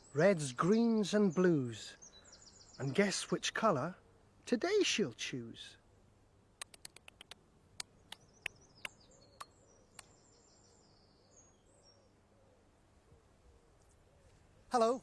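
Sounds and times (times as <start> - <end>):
faint sharp clicks: 6.6 - 10.2
faint high bird-like chirps: 7.8 - 15.0.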